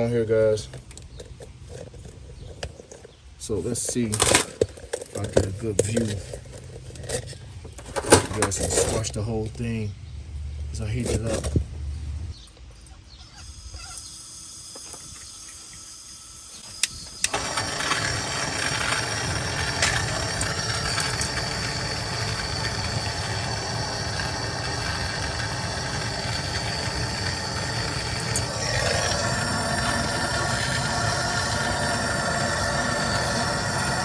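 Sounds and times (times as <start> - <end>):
torch flame hissing: 13.4 - 34.0
gas torch lighting click: 16.6 - 34.0.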